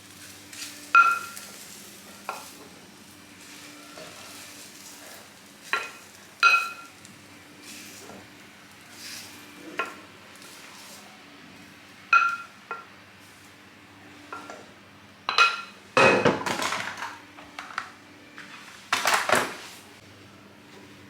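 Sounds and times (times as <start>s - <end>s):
metal utensils clinking and clattering: 3.5s - 6.9s.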